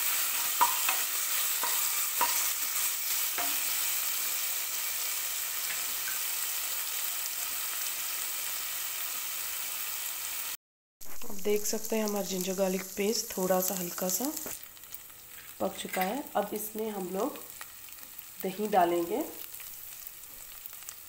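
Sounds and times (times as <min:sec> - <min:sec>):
spices sizzling in hot oil: 0:00.0 - 0:21.0
wooden spoon knocking pan: 0:00.6 - 0:01.0.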